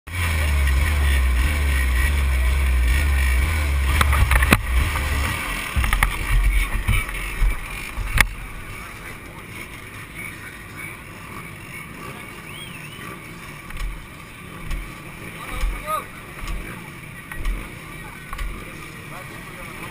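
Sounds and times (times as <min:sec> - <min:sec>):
vehicle engine noise: 0:00.1 - 0:19.9
wind rumble on microphone: 0:03.8 - 0:08.8
sharp knocks: 0:05.7 - 0:08.4.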